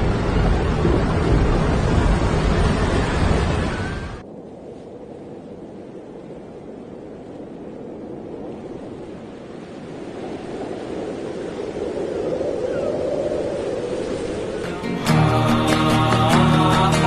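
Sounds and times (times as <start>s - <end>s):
rushing noise: 0.0s - 17.0s.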